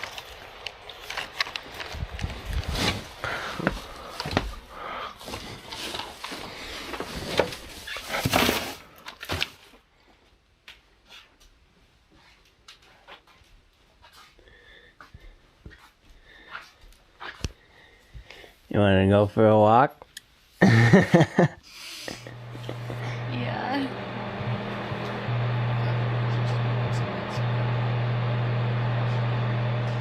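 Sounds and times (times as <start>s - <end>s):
things being handled rustling: 0.0s - 9.8s.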